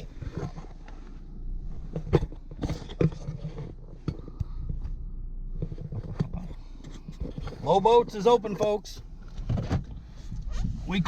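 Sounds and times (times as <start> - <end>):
car rumble inside cabin: 0.0 - 11.0
knocks and rustles: 1.7 - 7.8, 8.6 - 10.8.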